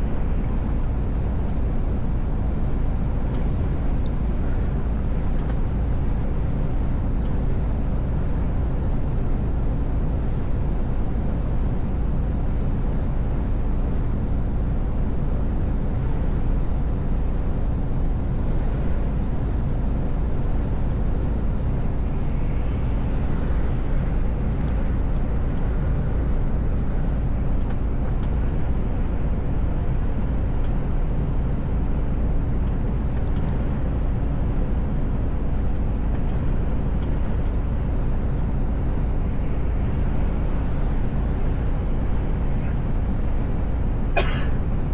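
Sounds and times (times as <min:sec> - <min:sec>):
truck diesel engine and road rumble: 0:00.0 - 0:44.9.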